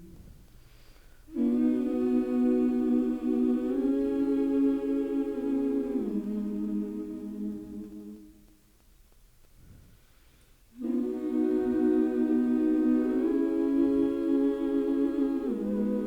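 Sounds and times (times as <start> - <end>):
wordless humming voices: 1.3 - 8.5, 10.8 - 16.0.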